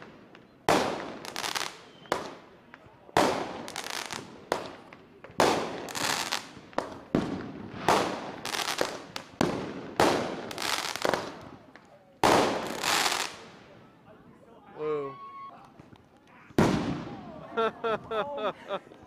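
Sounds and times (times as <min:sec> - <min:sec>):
fireworks exploding: 0:00.0 - 0:13.9, 0:15.8 - 0:17.5.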